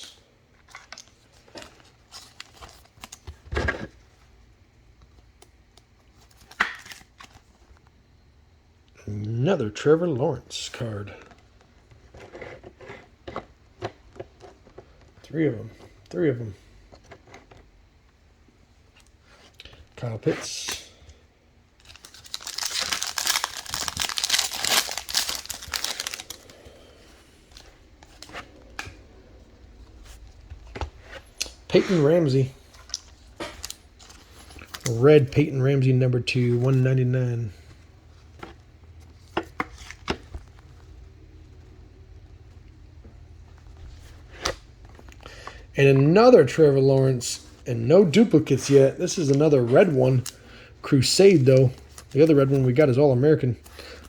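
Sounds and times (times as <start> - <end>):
wrapper tearing and crinkling: 21.8 - 26.5, 31.4 - 35.0.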